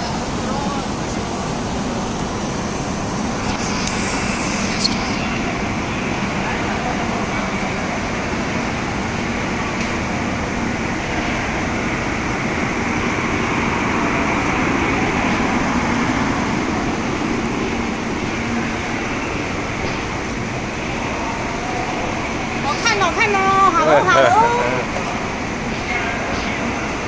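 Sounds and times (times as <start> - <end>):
steady rumble and hiss: 0.0 - 27.0.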